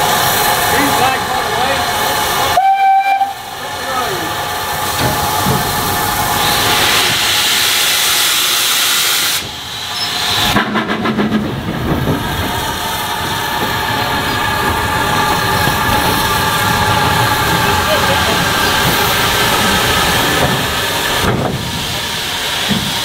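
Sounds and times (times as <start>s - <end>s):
steam hissing: 0.0s - 23.0s
steam locomotive working: 0.0s - 23.0s
short steam whistle: 2.6s - 3.4s.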